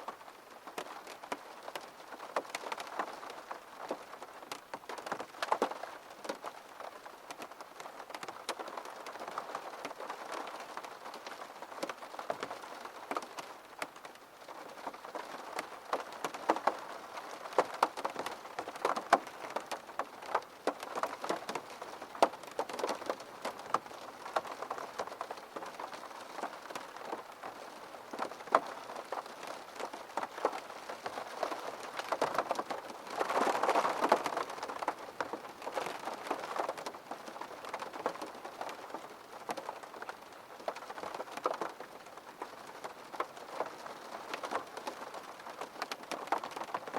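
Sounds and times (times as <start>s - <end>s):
rain tapping on a window: 0.0s - 46.9s.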